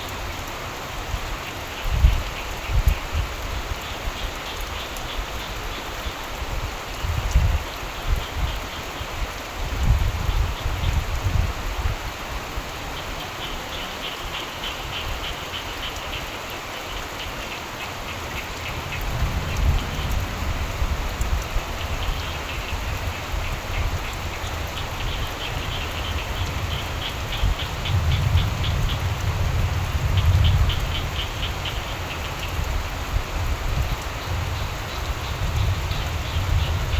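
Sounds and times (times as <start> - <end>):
steady rainfall: 0.0 - 36.9
frogs calling in rapid pulses: 12.7 - 32.8, 33.8 - 36.9
low rumble: 18.4 - 23.4.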